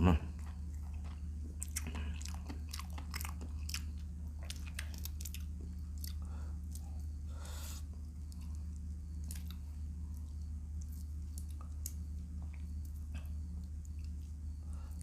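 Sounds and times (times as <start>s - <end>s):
crunchy chewing: 0.0s - 15.0s
steady low hum: 0.0s - 15.0s.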